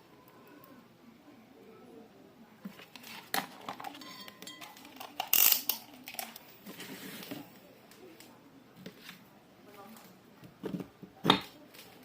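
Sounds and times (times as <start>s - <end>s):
clicks and knocks of small parts: 3.0s - 6.4s
loud rustling scrape: 6.6s - 7.5s.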